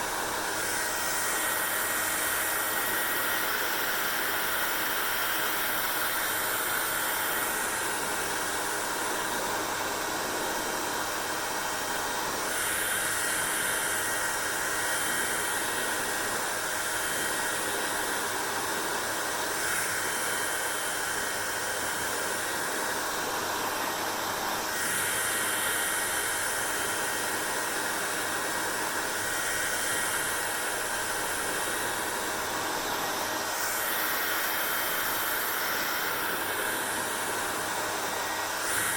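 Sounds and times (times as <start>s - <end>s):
faint steady whine: 0.0s - 38.9s
hair dryer blowing: 0.0s - 38.9s.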